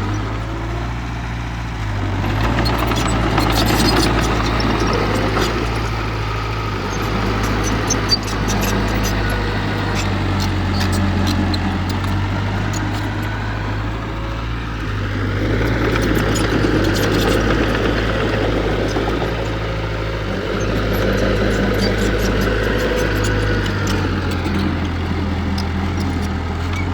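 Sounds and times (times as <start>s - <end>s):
heavy machinery diesel engine running: 0.0s - 26.9s.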